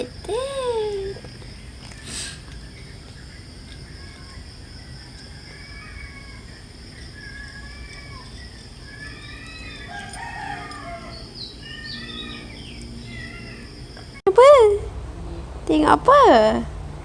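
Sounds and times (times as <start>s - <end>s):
birds chirping: 0.0s - 17.0s
rooster crowing: 4.1s - 13.8s.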